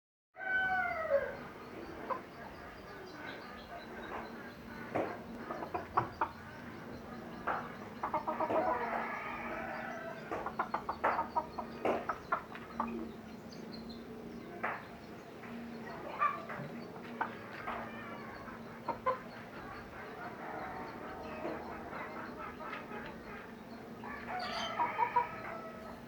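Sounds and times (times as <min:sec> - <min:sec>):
chickens clucking: 0:00.4 - 0:26.0
drawn-out chicken call: 0:08.0 - 0:11.5, 0:17.3 - 0:26.0.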